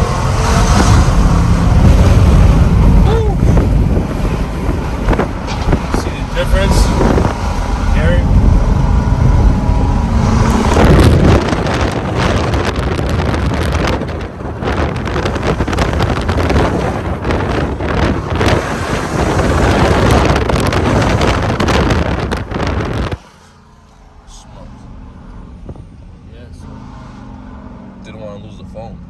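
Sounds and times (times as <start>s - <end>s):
wind buffeting microphone: 0.0s - 26.6s
loud car exhaust: 0.0s - 29.0s.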